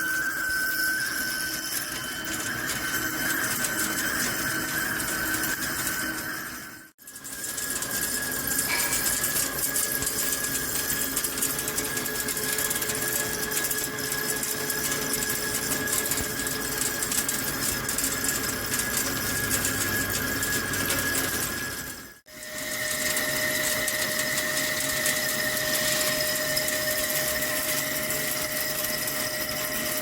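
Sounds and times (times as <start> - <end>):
thin high whine: 0.0 - 6.9, 7.9 - 12.3, 13.0 - 30.0
lathe machining noise: 7.2 - 30.0.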